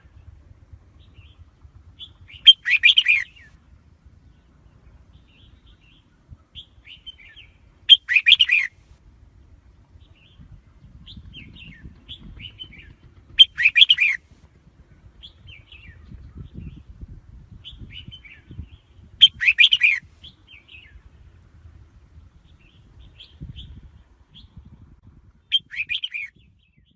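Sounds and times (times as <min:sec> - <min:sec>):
bird singing: 0:00.0 - 0:08.8, 0:09.9 - 0:14.2, 0:14.9 - 0:17.0, 0:17.6 - 0:21.2, 0:25.4 - 0:26.9
soft bird chirps: 0:01.0 - 0:08.8, 0:17.6 - 0:21.1, 0:25.5 - 0:26.9.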